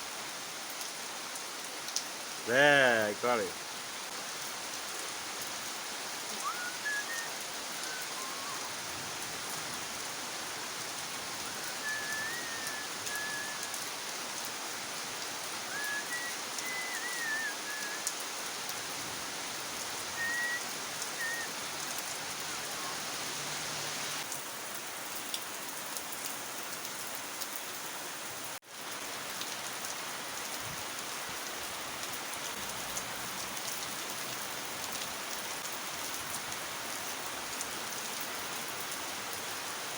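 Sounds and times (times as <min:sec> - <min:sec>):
heavy rain hissing: 0:00.1 - 0:24.7
faint high chirps: 0:06.4 - 0:08.8.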